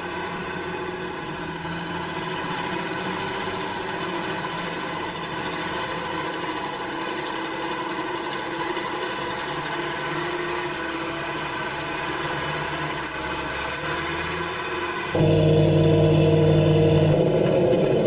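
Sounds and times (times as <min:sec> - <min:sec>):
farm machinery engine running: 0:00.0 - 0:14.4, 0:15.1 - 0:18.0.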